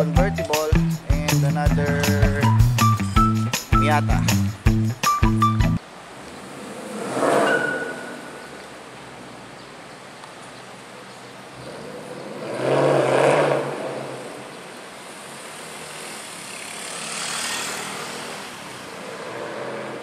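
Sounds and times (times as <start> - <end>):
car engine accelerating hard: 11.6 - 14.6, 15.4 - 20.0.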